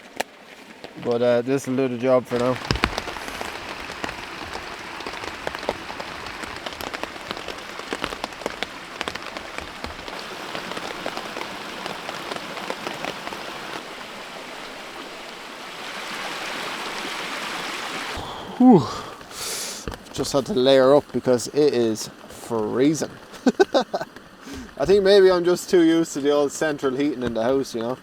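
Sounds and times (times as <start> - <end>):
raindrops tapping on fabric: 0.0 - 1.1, 2.3 - 14.0, 18.0 - 26.4, 27.0 - 28.0
heavy rain on a tent: 2.3 - 26.3.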